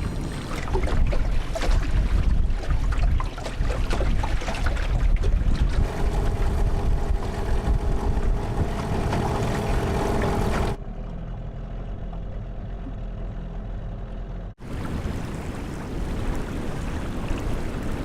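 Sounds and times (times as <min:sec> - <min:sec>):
wind noise on microphone: 0:00.0 - 0:10.8
outboard engine running: 0:00.0 - 0:16.0.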